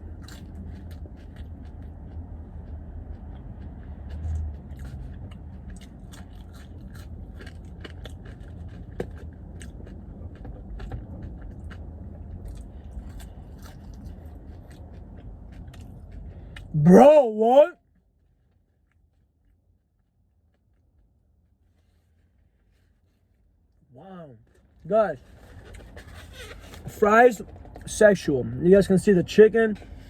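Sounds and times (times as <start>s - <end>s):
person chewing fries: 0.0s - 23.2s, 24.4s - 26.9s.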